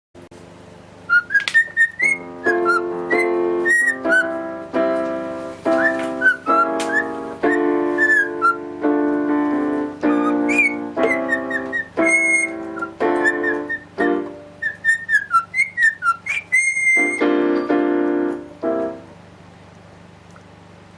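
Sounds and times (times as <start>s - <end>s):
keyboard chords: 1.0s - 14.8s, 17.0s - 19.5s
pet bird whistling and chirping: 1.1s - 4.4s, 5.7s - 8.6s, 10.0s - 17.3s.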